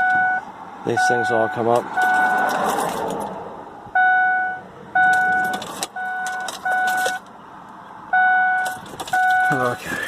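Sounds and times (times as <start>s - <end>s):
car warning chime dinging: 0.0s - 2.7s, 3.9s - 7.4s, 8.1s - 9.9s.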